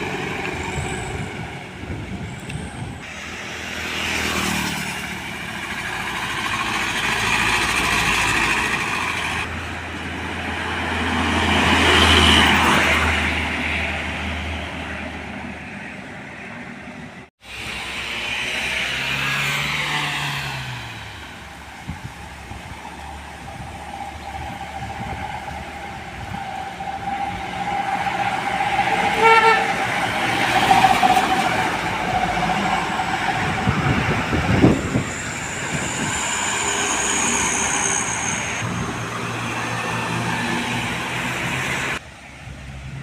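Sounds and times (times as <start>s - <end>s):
road traffic passing: 0.0s - 43.0s
vehicle horn: 28.9s - 30.0s.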